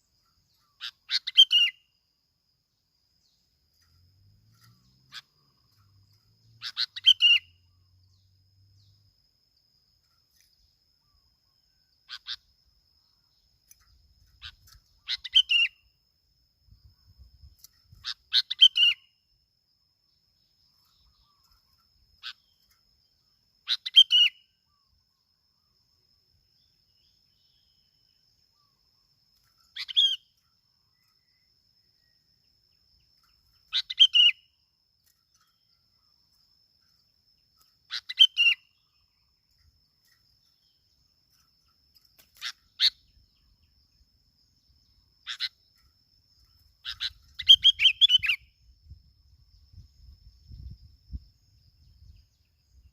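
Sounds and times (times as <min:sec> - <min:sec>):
bulbul chirpy calls: 0:00.0 - 0:02.0, 0:04.6 - 0:08.2, 0:10.4 - 0:16.0, 0:17.8 - 0:19.2, 0:20.4 - 0:25.0, 0:26.6 - 0:32.1, 0:32.7 - 0:43.8, 0:44.5 - 0:48.6.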